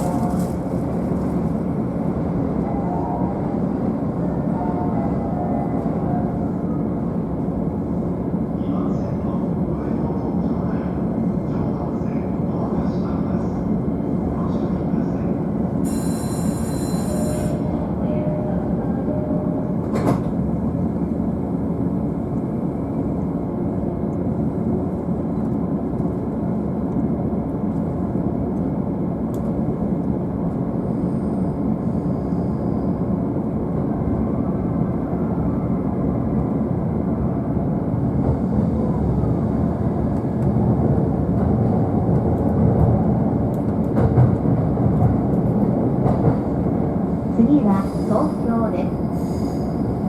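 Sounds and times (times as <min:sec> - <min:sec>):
train wheels rumbling: 0:37.2 - 0:50.0.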